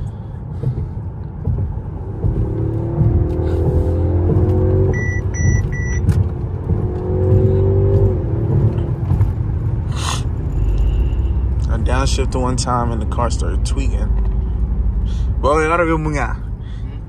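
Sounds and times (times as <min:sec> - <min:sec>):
car engine revving hard: 0:02.0 - 0:09.9
short electronic beeps: 0:04.9 - 0:06.0.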